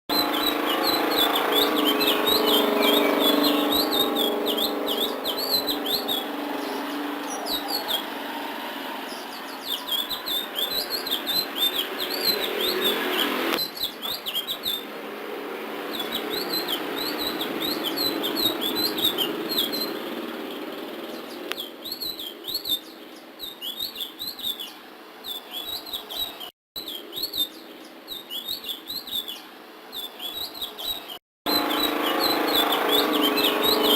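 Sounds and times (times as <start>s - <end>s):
bird singing twittering phrases: 0.1s - 15.0s, 15.7s - 33.9s.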